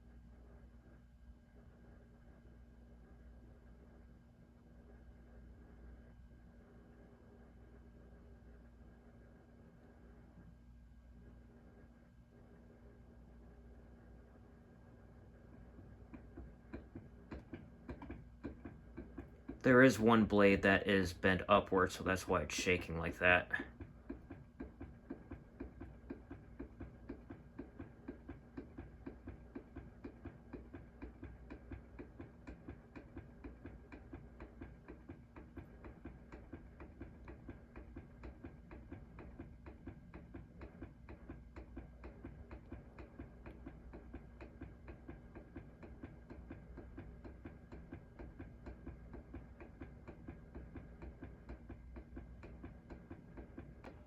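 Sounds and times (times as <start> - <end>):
ceiling fan motor hum: 0.0 - 54.0
faint fan ticking: 13.6 - 54.0.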